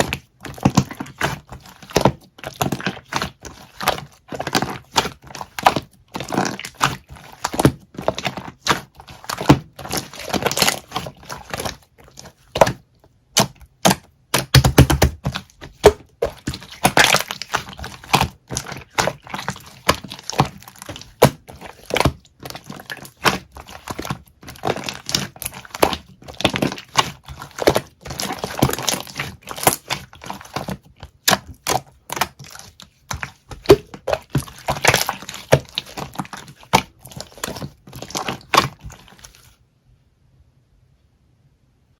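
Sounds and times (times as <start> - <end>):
slime squished by hand: 0.0 - 39.6.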